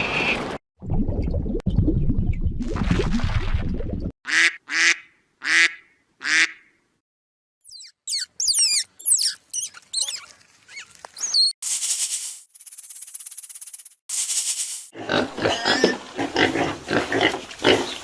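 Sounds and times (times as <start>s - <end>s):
short nasal quack-like calls: 4.3s - 6.7s
high chirps and whistles: 7.6s - 11.6s.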